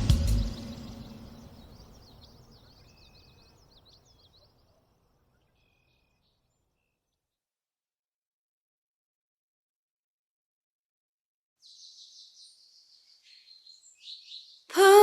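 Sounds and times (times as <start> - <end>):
faint outdoor ambience: 0.0 - 6.9
faint high birdsong chirps: 0.0 - 7.5, 11.6 - 15.0.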